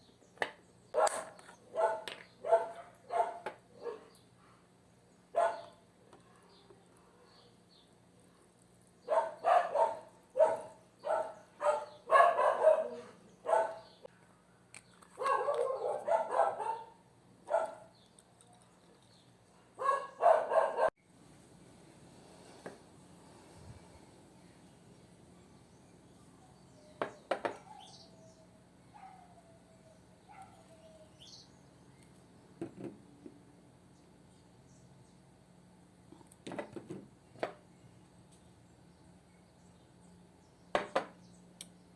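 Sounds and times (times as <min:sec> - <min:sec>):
dog barking: 0:01.0 - 0:04.1, 0:05.3 - 0:05.8, 0:09.1 - 0:14.0, 0:15.2 - 0:17.9, 0:19.8 - 0:20.9, 0:29.0 - 0:29.4, 0:30.3 - 0:30.7.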